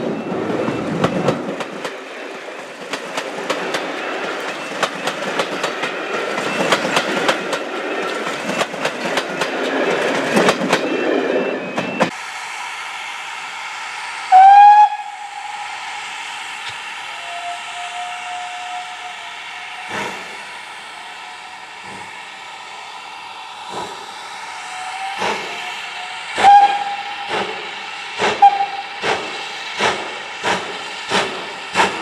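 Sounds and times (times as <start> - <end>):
train wheels clicking over rail joints: 0.0 - 11.0, 19.7 - 20.5, 21.7 - 22.5, 23.6 - 32.0
steam locomotive whistle: 14.2 - 21.8, 24.6 - 27.7, 28.3 - 29.1.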